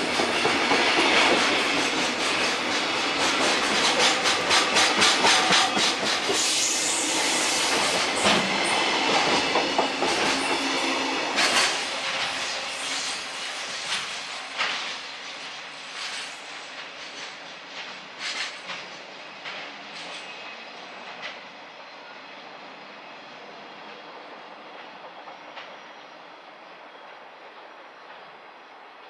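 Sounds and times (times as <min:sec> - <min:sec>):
freight train wheels clattering: 0:00.0 - 0:15.0.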